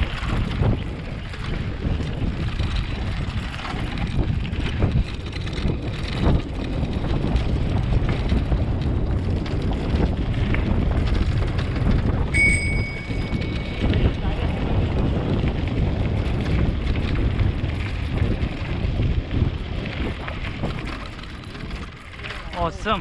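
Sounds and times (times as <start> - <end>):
wind buffeting microphone: 0.0 - 23.0
high-pitched ring: 12.3 - 14.2.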